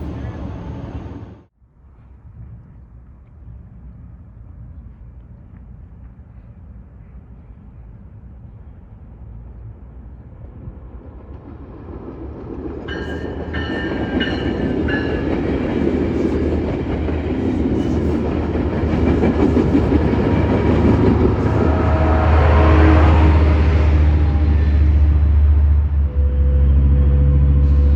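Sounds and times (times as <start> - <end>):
wheels on rails: 10.5 - 21.9
deep engine drone: 18.0 - 27.9.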